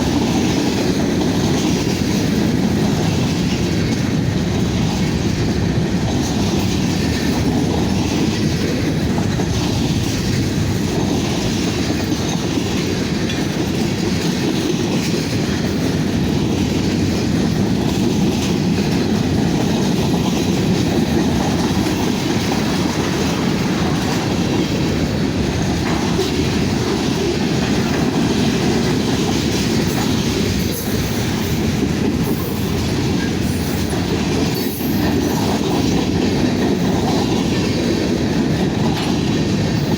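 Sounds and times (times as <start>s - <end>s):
clickety-clack over rail joints: 0.0s - 39.9s
train wheels rumbling on rail: 0.0s - 39.9s.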